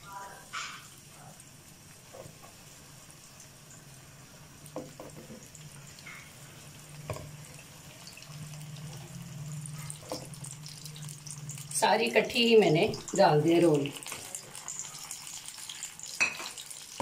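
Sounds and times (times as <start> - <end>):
food sizzling in oil: 0.0 - 17.0
low steady hum: 4.5 - 14.0
soft knocks in a pan: 4.8 - 5.4.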